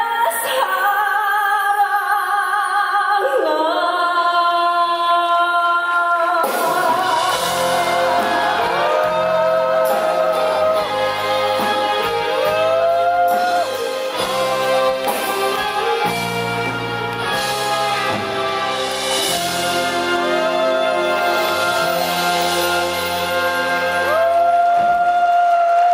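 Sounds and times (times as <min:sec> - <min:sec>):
band with bass and percussion: 0:06.4 - 0:25.9.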